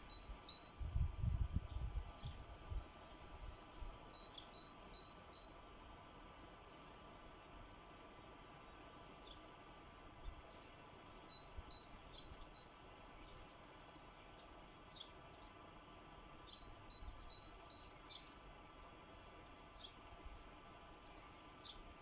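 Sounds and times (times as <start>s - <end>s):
sparrows chirping: 0.0s - 0.8s, 3.5s - 5.7s, 8.7s - 9.5s, 10.2s - 18.6s, 19.4s - 20.1s, 20.8s - 22.0s
faint steady hum: 0.0s - 22.0s.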